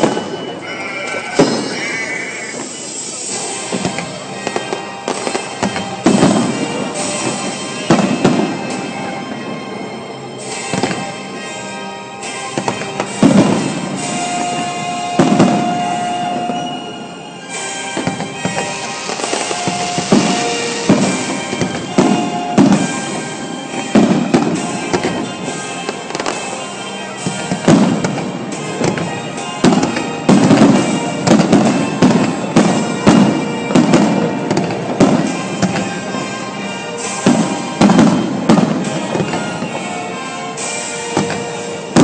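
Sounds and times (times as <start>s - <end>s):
music playing: 0.0s - 42.0s
firework shells bursting: 12.2s - 42.0s.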